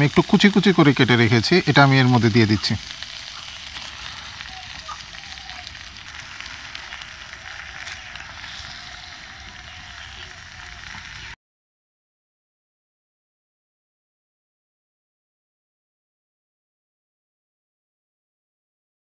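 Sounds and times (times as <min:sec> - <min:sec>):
meat sizzling in a frying pan: 0:00.0 - 0:11.4
spatula stirring in a pan: 0:02.1 - 0:10.2.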